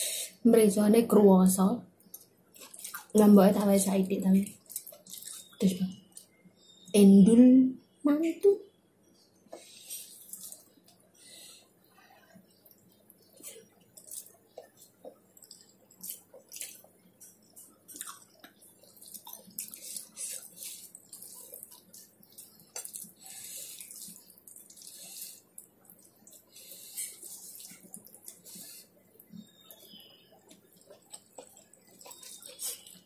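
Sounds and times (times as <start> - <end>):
wet chewing and lip-smacking: 2.0 - 3.3, 4.4 - 6.4, 9.5 - 11.0, 12.6 - 33.0.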